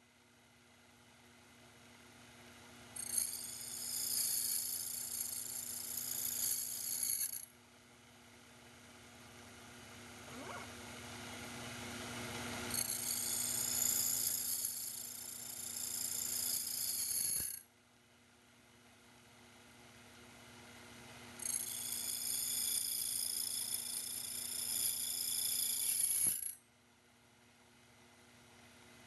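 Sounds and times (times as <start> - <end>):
low machine hum: 8.7 - 12.6.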